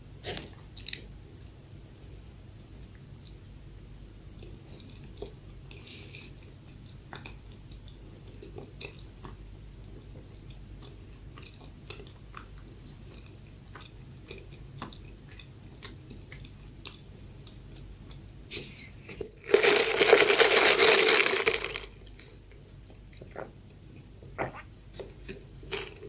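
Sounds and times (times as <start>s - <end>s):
low steady hum: 0.0s - 26.0s
chewing soft bread: 4.3s - 20.4s, 24.9s - 26.0s.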